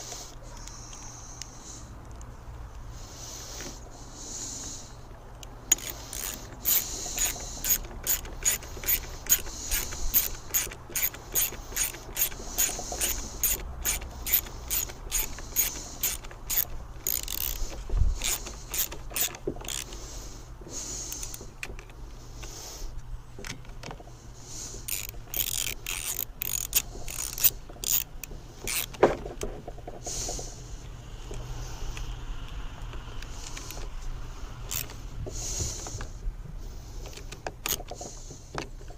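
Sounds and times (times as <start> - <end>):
hand ratchet clicking: 5.4 - 20.0, 20.8 - 22.6, 24.7 - 29.0, 34.6 - 35.0, 37.0 - 38.2.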